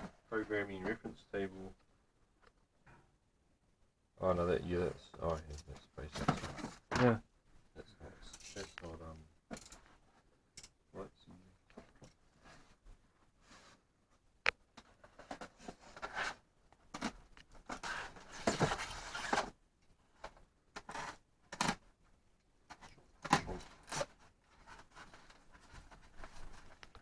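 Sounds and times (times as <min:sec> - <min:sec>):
packaging rustling and scraping: 0:15.0 - 0:19.6.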